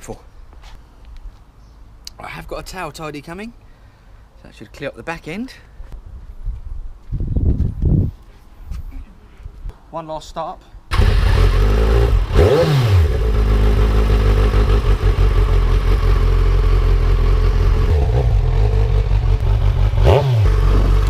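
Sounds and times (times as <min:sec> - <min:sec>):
motorcycle engine idling and revving: 0:10.9 - 0:21.0.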